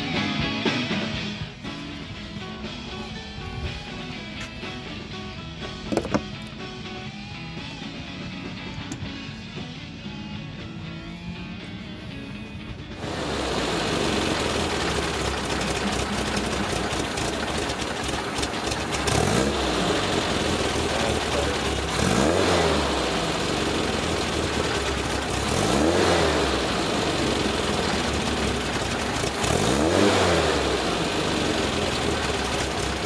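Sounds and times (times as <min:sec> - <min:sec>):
car engine idling and revving: 0:00.0 - 0:33.0.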